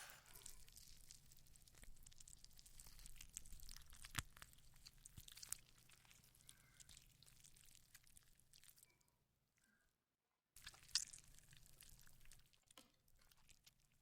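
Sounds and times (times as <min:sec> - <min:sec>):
faint crackling and small clicks: 0:00.2 - 0:08.2.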